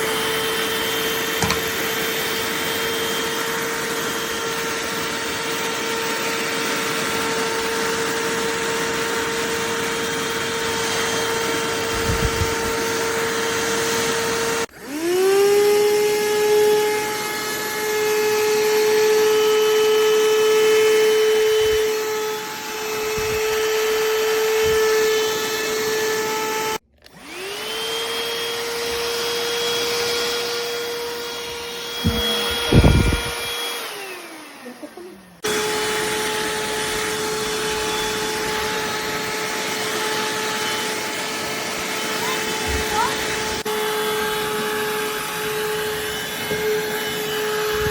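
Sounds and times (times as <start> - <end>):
handheld vacuum motor whining: 0.0 - 47.9
dull bumps: 32.0 - 33.3.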